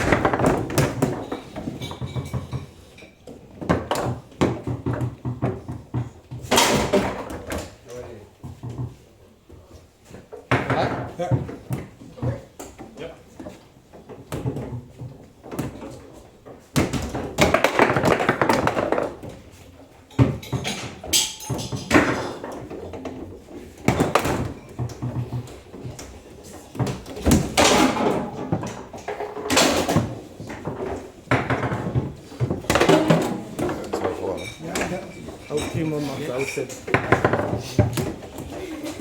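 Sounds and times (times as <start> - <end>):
table football rattling: 0.0 - 7.8, 10.2 - 39.0
table football ball knocking: 36.8 - 38.4.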